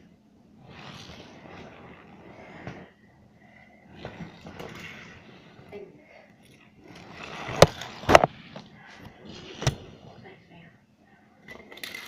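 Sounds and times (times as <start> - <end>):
plastic toys rattling and clattering: 11.5 - 12.0.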